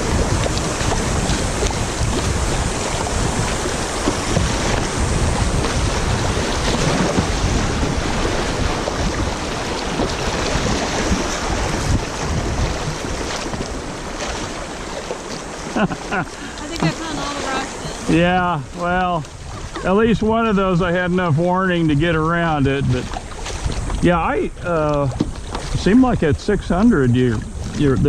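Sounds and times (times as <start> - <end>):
river water rushing over rocks: 0.0 - 20.7
wind buffeting microphone: 0.0 - 28.0.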